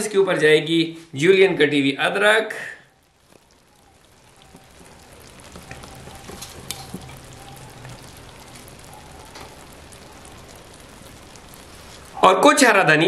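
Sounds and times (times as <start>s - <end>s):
meat sizzling and crackling: 2.8s - 13.0s
sharp pops: 3.1s - 12.2s.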